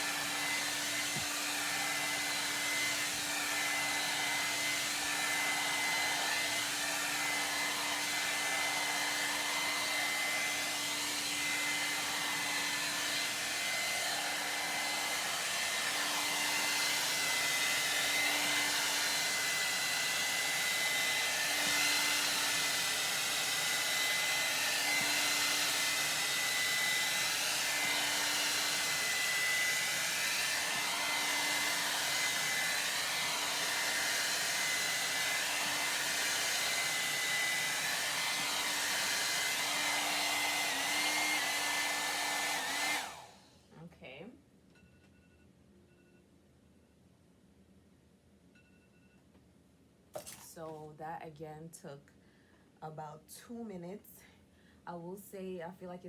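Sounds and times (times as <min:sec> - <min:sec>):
hair dryer running: 0:00.0 - 0:43.6, 0:50.2 - 0:50.8.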